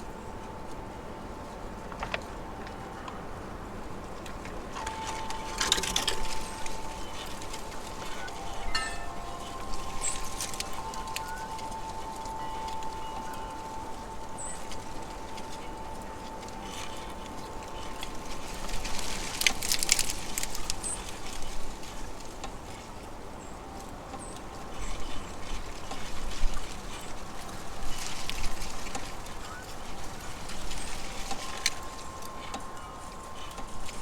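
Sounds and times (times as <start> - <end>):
faint steady tone: 0.0 - 34.0
high chirps: 4.9 - 17.7.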